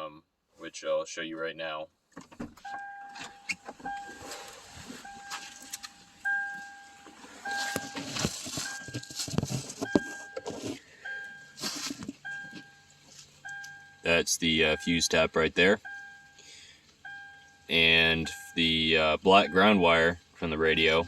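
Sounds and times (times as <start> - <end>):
warning chime beeping: 2.7 - 4.4, 5.0 - 9.2, 9.9 - 11.6, 12.2 - 16.4, 17.0 - 21.0
rustling and clicking of small parts: 7.7 - 10.9.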